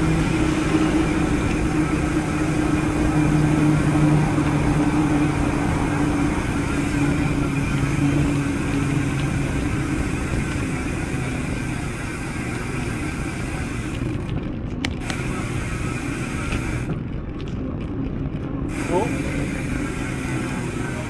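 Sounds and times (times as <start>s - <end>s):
rushing wind noise: 0.0s - 12.6s
vehicle engine hum: 0.0s - 21.0s.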